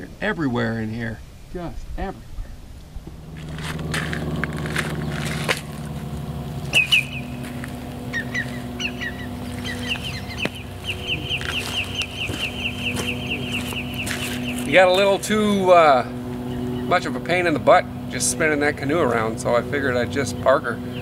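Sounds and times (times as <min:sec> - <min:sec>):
steady low hum: 0:00.0 - 0:21.0
bird chirping: 0:06.5 - 0:15.6, 0:16.4 - 0:17.2, 0:20.1 - 0:21.0.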